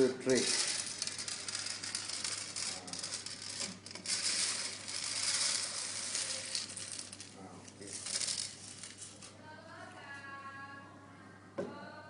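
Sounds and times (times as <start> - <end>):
coffee beans rattling onto tray: 0.0 - 9.4.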